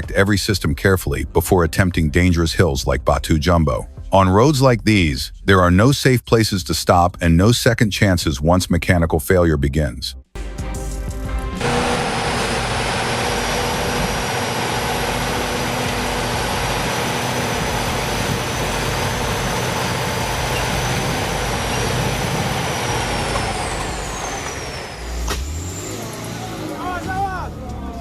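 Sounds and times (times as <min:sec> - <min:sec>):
high whine: 0:10.4 - 0:27.4
heavy truck engine running: 0:10.4 - 0:28.0
mechanical noise: 0:11.6 - 0:26.4.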